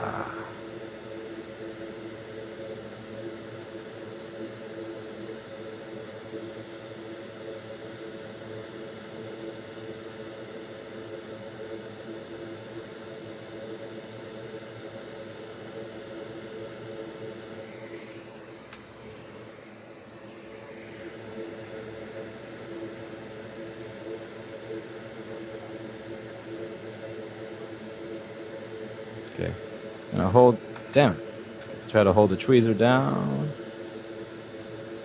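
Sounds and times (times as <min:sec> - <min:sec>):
low hum: 0:00.0 - 0:00.6
small fan whirring: 0:24.7 - 0:35.0.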